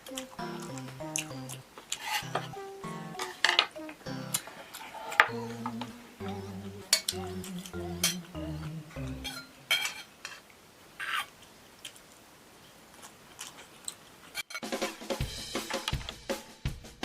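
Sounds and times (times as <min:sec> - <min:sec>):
utensils clinking on plate: 0:08.0 - 0:08.3, 0:09.1 - 0:10.4.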